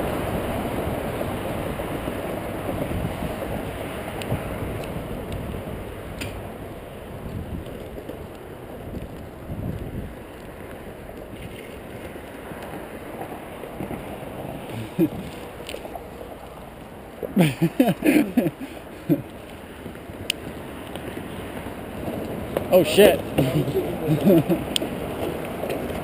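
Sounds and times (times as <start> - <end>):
wind on microphone: 0.0 - 12.1, 13.8 - 16.0
skateboard wheels rolling on pavement: 0.0 - 26.0.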